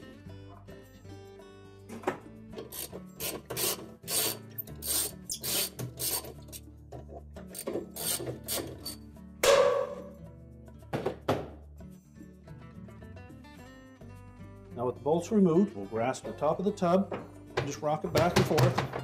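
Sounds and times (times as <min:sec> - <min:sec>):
ratchet strokes: 0:02.6 - 0:06.6, 0:07.5 - 0:09.0.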